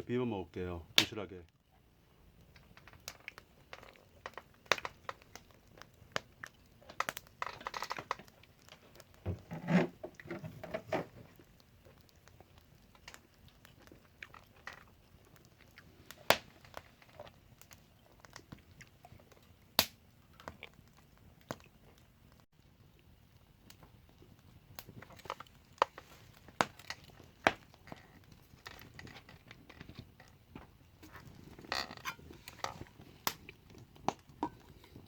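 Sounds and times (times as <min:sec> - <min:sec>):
person chewing: 0:11.9 - 0:15.9, 0:20.3 - 0:22.1.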